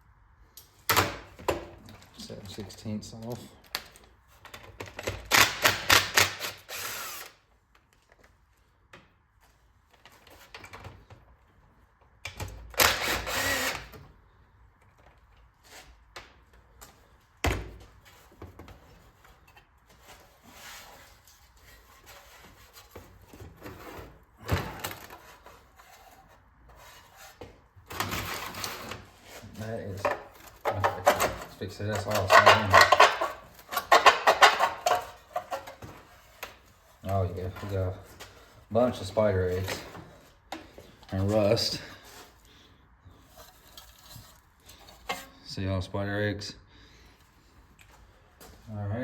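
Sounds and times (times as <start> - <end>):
power driver whirring: 12.8 - 14.0.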